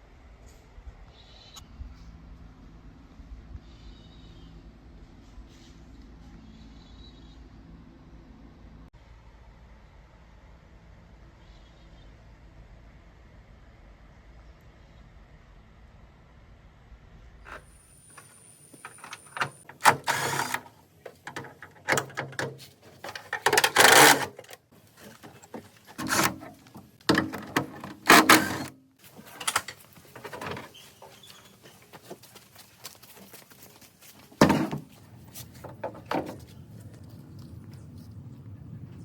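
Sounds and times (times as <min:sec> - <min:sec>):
scraping strokes: 0:22.6 - 0:26.7.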